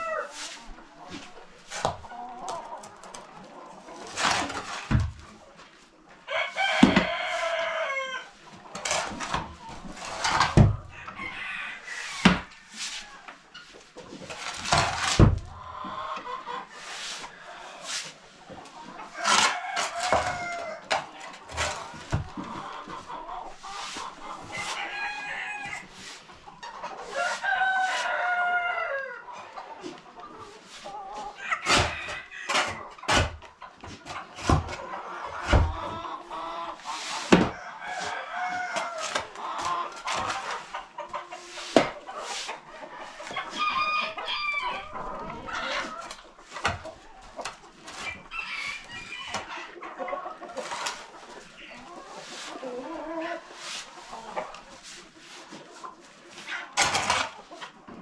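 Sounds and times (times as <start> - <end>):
chickens clucking: 0.0 - 58.0
rooster crowing: 6.3 - 8.3, 27.2 - 29.2, 43.5 - 44.9.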